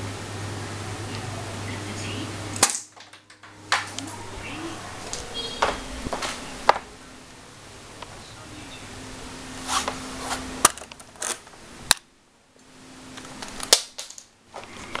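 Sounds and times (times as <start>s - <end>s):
gun handling clicks and rustling: 10.6s - 12.0s.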